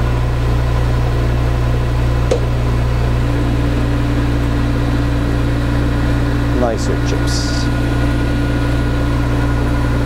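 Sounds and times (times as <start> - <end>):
higher steady hum: 0.0 - 10.0
lathe motor hum: 0.0 - 10.0.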